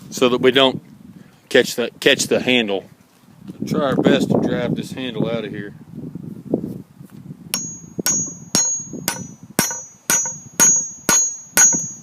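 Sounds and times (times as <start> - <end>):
hammer blows ringing on metal: 7.6 - 12.0.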